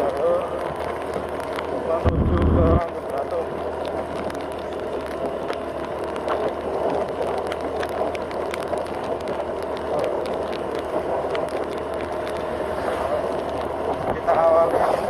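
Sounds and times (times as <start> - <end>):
motorcycle engine: 2.0 - 2.9
light ticks: 2.8 - 14.4.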